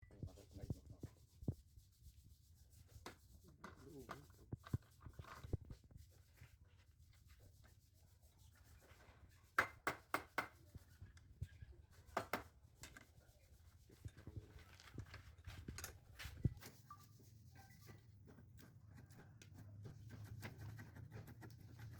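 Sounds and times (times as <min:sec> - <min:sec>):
tapping on wood: 0:09.6 - 0:10.6, 0:12.2 - 0:12.5.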